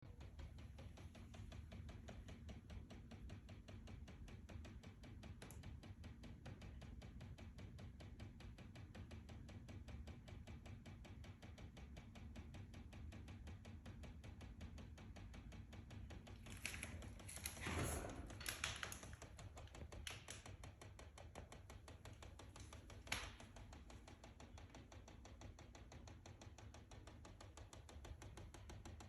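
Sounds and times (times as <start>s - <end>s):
rapid ticking inside wall: 0.0s - 29.0s.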